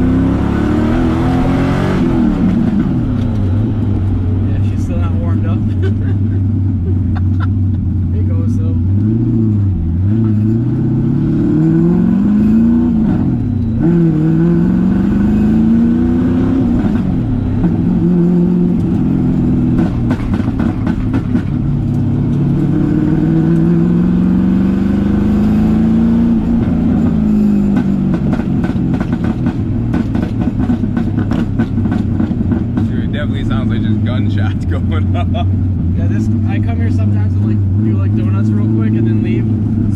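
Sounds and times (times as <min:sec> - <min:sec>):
exhaust pops and backfires: 0:00.0 - 0:08.0, 0:16.2 - 0:24.5, 0:25.2 - 0:39.9
car engine revving: 0:00.0 - 0:39.9.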